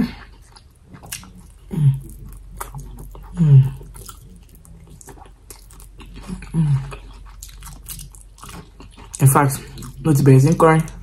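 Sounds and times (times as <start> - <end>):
wet chewing: 0.0 - 11.0
person humming mm: 1.6 - 2.3, 3.2 - 4.4.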